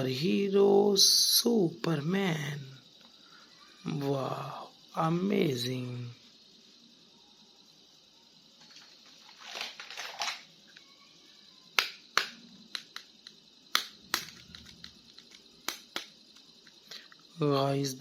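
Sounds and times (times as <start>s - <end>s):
plastic packaging crinkling: 8.7s - 10.5s
plastic clicks and taps: 11.8s - 16.8s.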